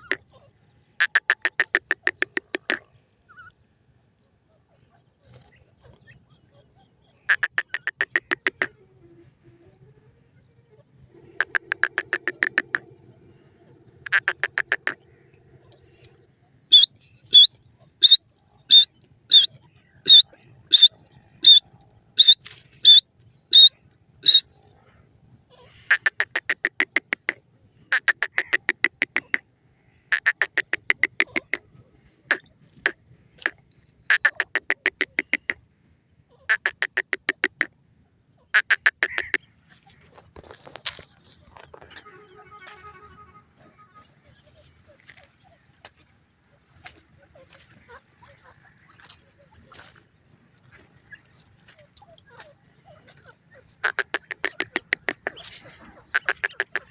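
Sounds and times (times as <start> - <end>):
birds rattling chatter: 4.9 - 8.8, 10.5 - 35.7, 38.5 - 56.9
sharp high bird notes: 11.1 - 21.6.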